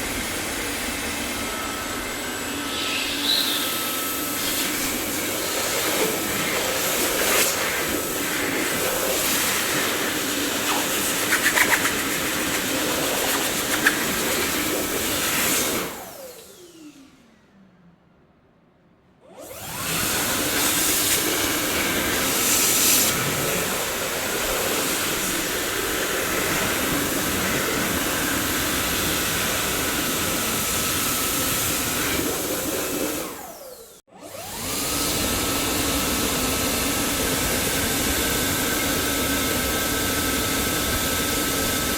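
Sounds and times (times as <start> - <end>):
vacuum cleaner motor running: 0.0 - 17.5, 19.3 - 41.9.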